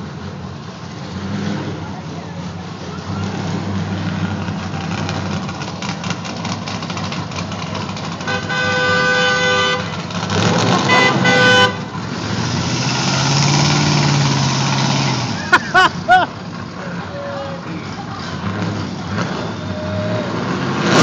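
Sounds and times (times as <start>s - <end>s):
car engines running: 0.0s - 21.0s
car horn honking: 8.2s - 10.1s, 10.8s - 11.9s.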